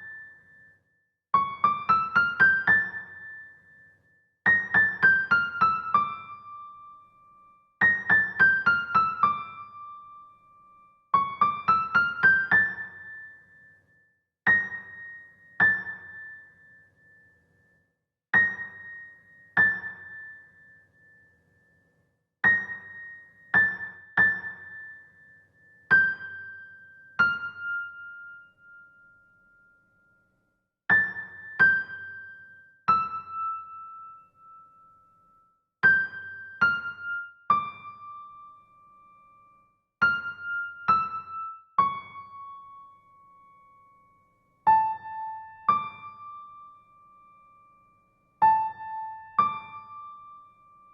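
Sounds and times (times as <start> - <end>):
solo piano-like keyboard music: 1.3 - 3.6, 4.4 - 13.4, 18.3 - 20.7, 22.4 - 25.0, 25.9 - 29.2, 30.9 - 34.8, 35.8 - 39.2, 40.0 - 44.0, 44.6 - 47.6, 48.4 - 50.9.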